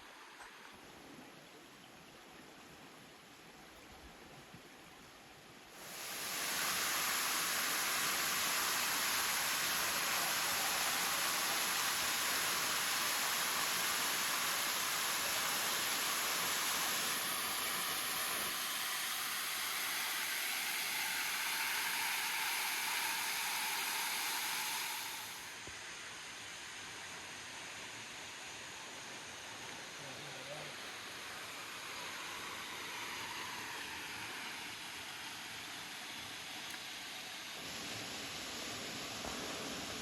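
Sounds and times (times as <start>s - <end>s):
waterfall rushing: 5.8s - 25.5s.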